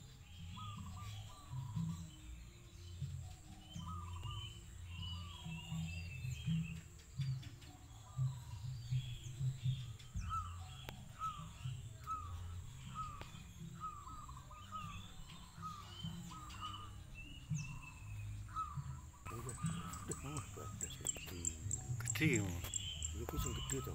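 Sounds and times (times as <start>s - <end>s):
high bird chirps: 0.3s - 6.9s, 8.0s - 23.9s
low uneven rumble: 8.0s - 23.9s
bird repeating rising-falling call: 10.2s - 23.9s.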